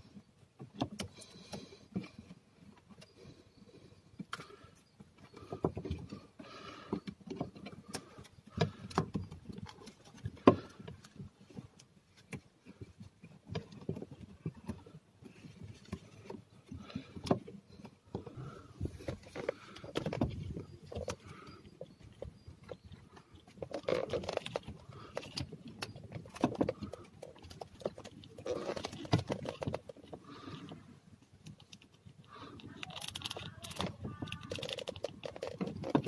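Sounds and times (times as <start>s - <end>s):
hands handling parts clicking: 19.0s - 36.0s.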